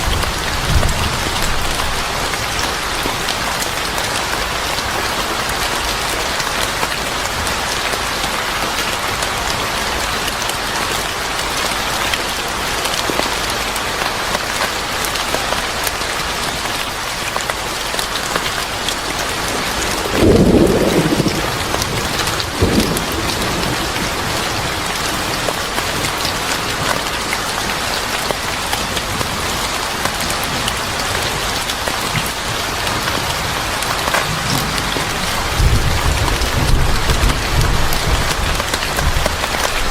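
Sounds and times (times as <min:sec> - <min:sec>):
heavy rain falling: 0:00.0 - 0:39.9
low rumble of thunder: 0:19.6 - 0:25.4, 0:34.2 - 0:39.9.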